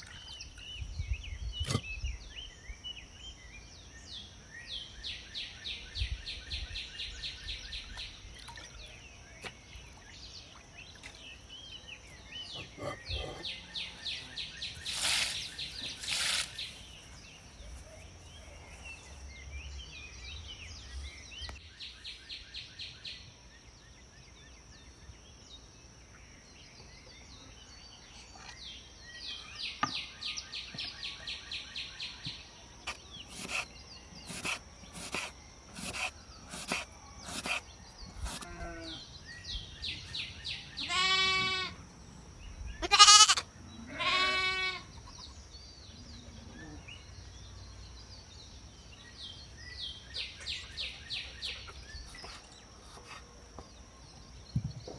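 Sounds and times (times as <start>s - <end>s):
songbirds singing: 0.0s - 54.9s
short bursts of hissing noise: 14.8s - 16.9s, 32.9s - 37.6s.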